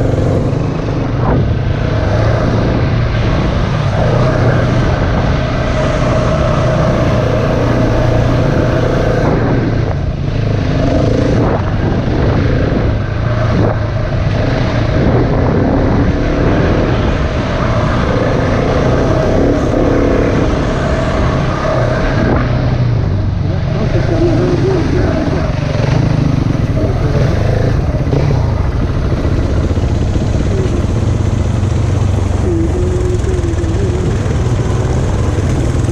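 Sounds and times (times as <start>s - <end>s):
dirt bike engine revving: 0.0s - 13.7s, 23.5s - 35.9s.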